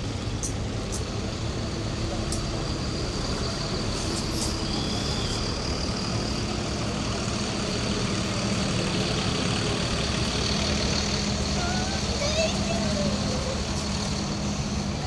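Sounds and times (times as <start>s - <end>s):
heavy vehicle engine idling: 0.0s - 15.0s
street traffic: 0.0s - 15.0s.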